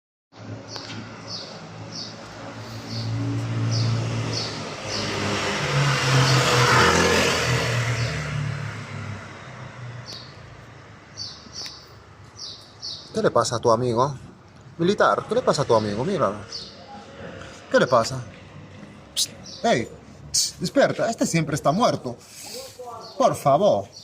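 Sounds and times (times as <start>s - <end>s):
bird chirping: 0.6s - 5.5s, 6.1s - 8.5s, 9.9s - 24.0s
car driving past: 1.0s - 11.3s.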